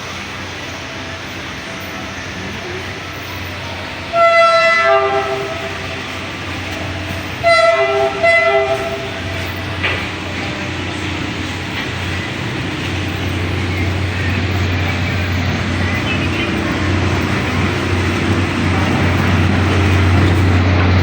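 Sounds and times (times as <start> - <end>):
train running rumble: 0.0 - 21.0
diesel train horn: 3.8 - 11.5.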